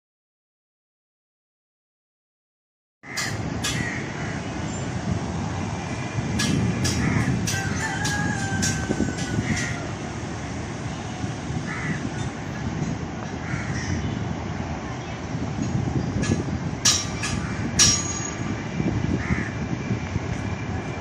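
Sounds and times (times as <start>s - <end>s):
crows cawing: 3.0s - 4.5s, 6.9s - 10.0s, 11.7s - 12.1s, 13.4s - 14.1s, 19.2s - 19.6s
train rumbling: 3.1s - 21.0s
sharp metallic clanks: 6.4s - 9.8s, 15.7s - 18.6s.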